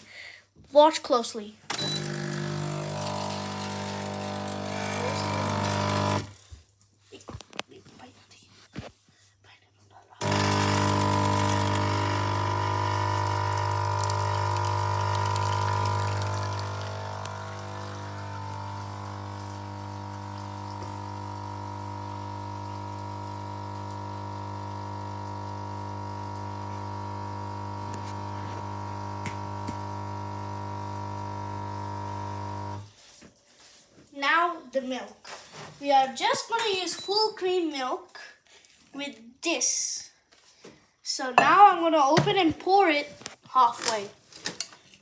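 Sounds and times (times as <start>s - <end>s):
espresso machine pump hum: 1.7s - 6.3s, 10.2s - 32.9s.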